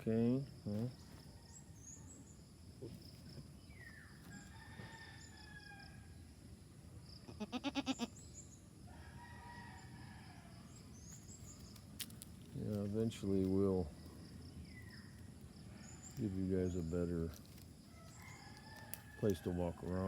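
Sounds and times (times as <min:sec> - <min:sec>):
faint rooster crowing: 0:01.1 - 0:02.5, 0:04.1 - 0:06.2, 0:08.8 - 0:11.0, 0:17.8 - 0:20.0
goat bleating: 0:07.3 - 0:08.2.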